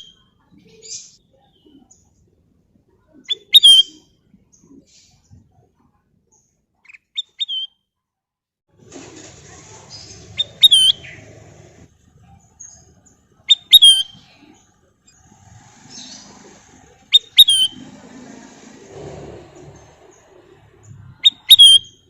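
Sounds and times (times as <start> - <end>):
bird whistled call: 3.4 - 4.0, 10.4 - 11.2, 13.5 - 14.2, 17.1 - 17.8, 21.2 - 22.0.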